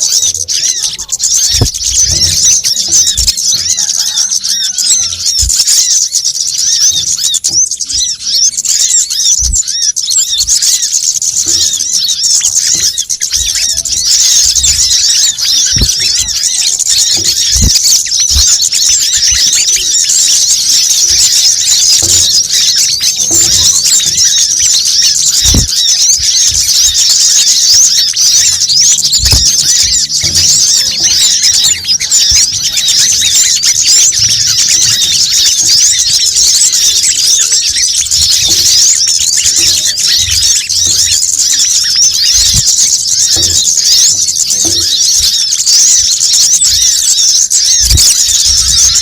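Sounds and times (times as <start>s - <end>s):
chorus of chirping birds: 0.0s - 49.0s
dull low thumps: 13.3s - 19.9s.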